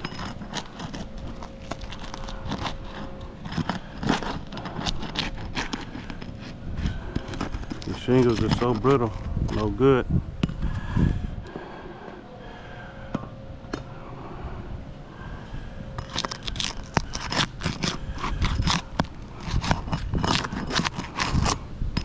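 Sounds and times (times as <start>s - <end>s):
shingles scraping and crackling: 0.0s - 9.9s, 16.0s - 21.6s.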